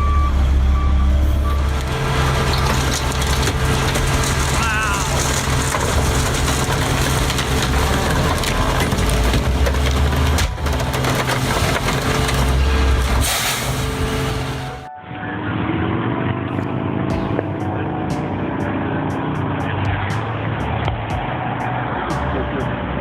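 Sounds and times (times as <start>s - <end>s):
diesel engine humming: 0.0s - 23.0s
metal crunching and creaking: 1.2s - 14.9s.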